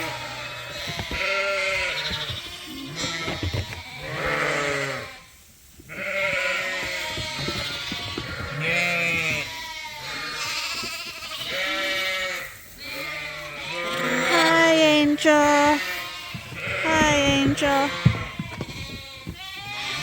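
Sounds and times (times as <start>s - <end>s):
sheep bleating: 0.0s - 5.3s, 5.9s - 20.0s.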